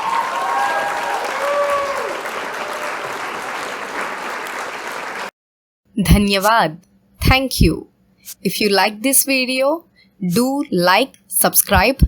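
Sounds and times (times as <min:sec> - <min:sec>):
crowd applause: 0:00.0 - 0:05.3.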